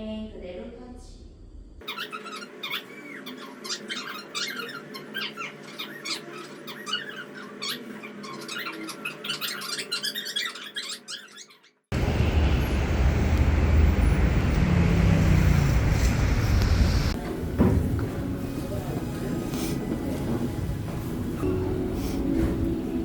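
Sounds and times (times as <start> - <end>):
short squeaks and clicks: 1.8 - 11.8
low rumble of moving vehicle: 11.9 - 23.0.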